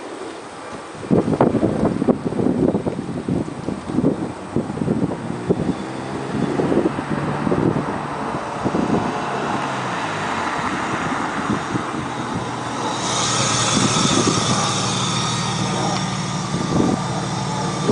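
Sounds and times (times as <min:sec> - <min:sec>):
car exhaust note: 0:02.8 - 0:17.9
rushing hiss: 0:11.3 - 0:17.9.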